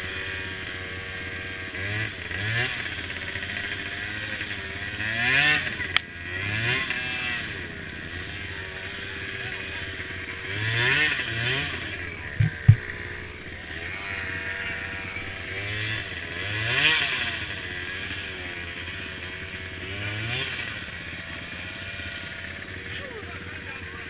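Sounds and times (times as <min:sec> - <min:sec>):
mini quad engines revving: 0:00.0 - 0:24.0
sharp knocks: 0:12.4 - 0:13.0.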